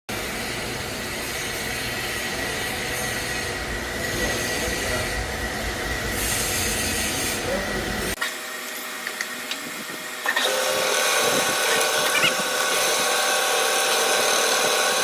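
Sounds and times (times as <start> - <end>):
machine tool cutting metal: 9.0 - 15.0.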